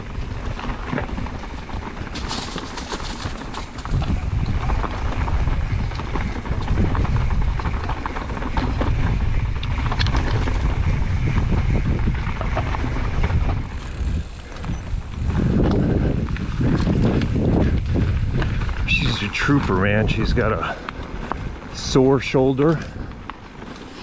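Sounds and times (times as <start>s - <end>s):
bike tyres rattling over rocks: 0.0s - 24.0s
wind buffeting microphone: 0.0s - 24.0s.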